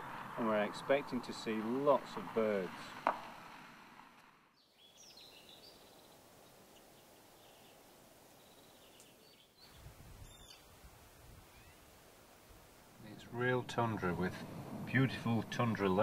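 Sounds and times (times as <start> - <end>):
background hiss: 0.0 - 16.0
bird calls: 4.6 - 10.7, 11.4 - 11.9
low rumble: 13.0 - 16.0.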